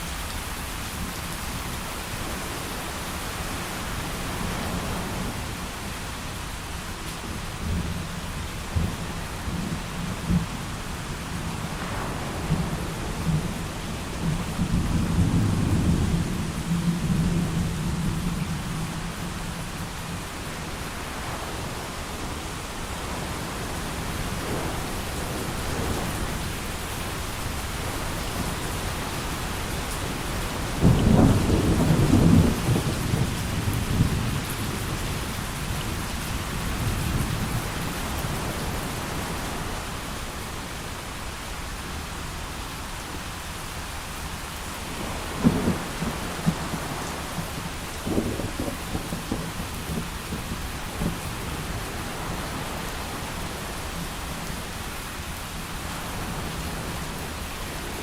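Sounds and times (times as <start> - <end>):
heavy rain: 0.0 - 58.0
thunder: 30.7 - 35.1, 45.3 - 51.5.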